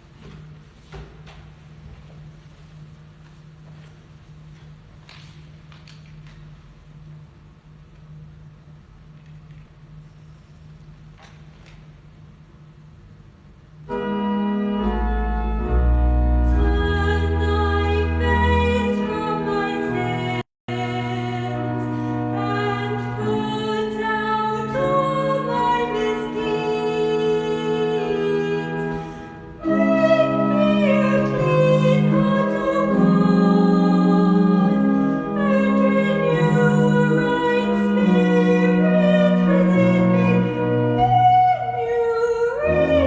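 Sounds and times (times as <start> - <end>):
church music chords: 13.5 - 43.0
person singing: 29.6 - 43.0.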